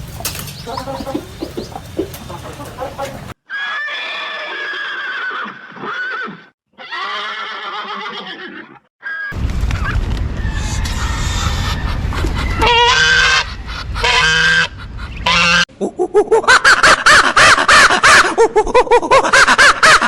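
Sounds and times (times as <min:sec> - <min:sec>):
hens clucking: 0:00.0 - 0:03.4
horse whinnying: 0:03.5 - 0:09.3.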